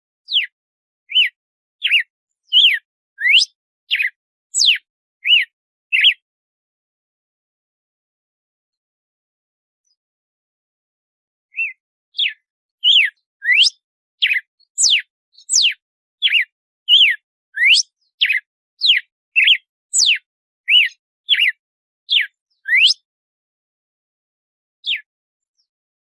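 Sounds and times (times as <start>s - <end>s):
bird singing whistled notes: 0.2s - 6.2s, 11.5s - 23.1s, 24.8s - 25.7s.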